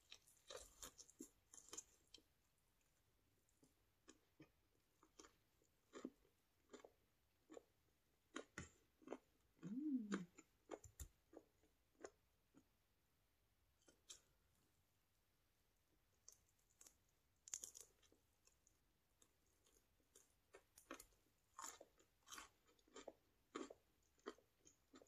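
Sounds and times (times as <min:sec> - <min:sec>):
wet chewing mouth clicks: 0:09.1 - 0:11.0
person humming: 0:09.6 - 0:10.3.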